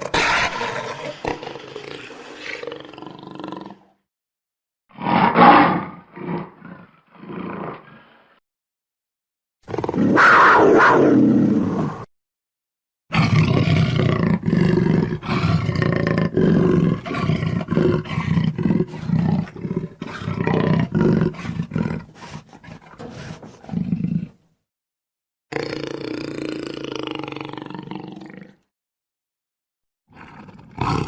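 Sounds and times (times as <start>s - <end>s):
jaguar roaring and growling: 0.0s - 3.9s, 4.9s - 8.4s, 9.7s - 12.1s, 13.1s - 24.4s, 30.1s - 31.0s.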